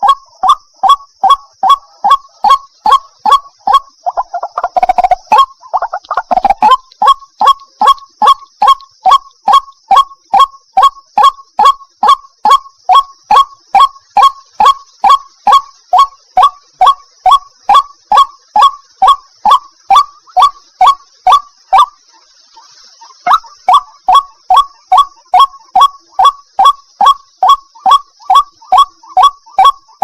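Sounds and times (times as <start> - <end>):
waterhen calling: 0.0 - 30.0
faint high hiss: 13.8 - 24.1.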